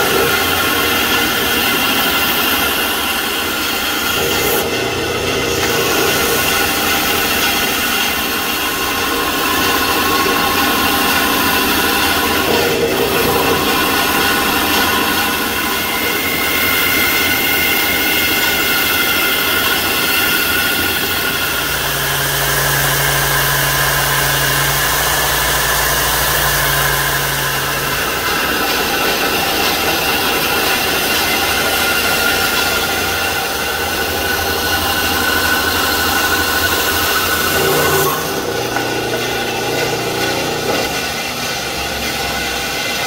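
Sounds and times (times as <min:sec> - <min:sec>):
bandsaw cutting wood: 0:00.0 - 0:43.0
belt sander grinding wood: 0:00.0 - 0:43.0.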